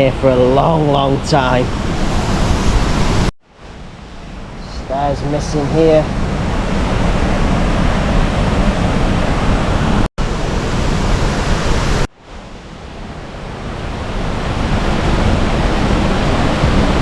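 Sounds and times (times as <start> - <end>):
waterfall roar: 4.1 - 17.0.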